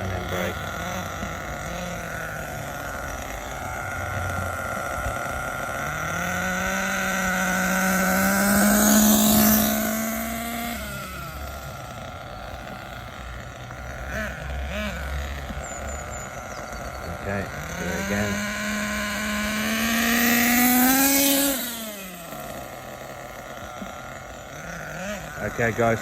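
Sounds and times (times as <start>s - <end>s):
model nitro engine revving: 0.0s - 26.0s.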